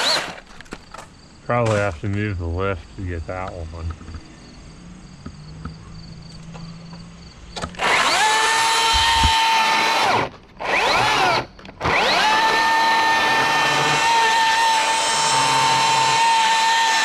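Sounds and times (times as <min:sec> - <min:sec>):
electric motor whining: 0:07.6 - 0:17.0.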